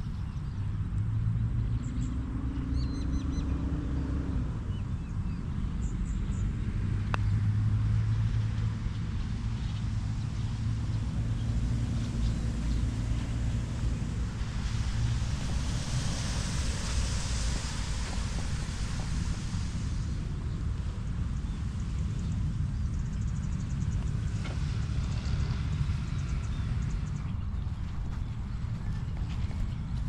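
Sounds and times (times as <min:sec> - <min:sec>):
low rumble: 0:00.0 - 0:30.0
vehicle engine humming: 0:00.0 - 0:30.0
faint birds chirping: 0:20.0 - 0:30.0.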